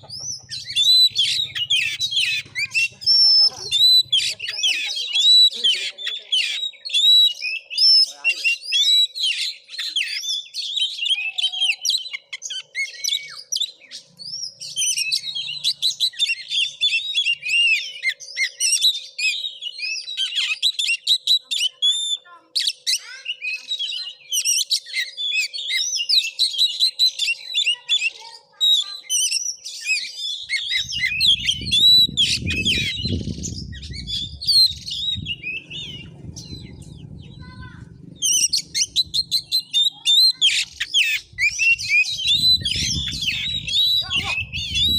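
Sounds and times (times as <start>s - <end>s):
songbird singing: 0.0s - 44.9s
low rumble: 30.8s - 39.8s, 41.2s - 44.9s.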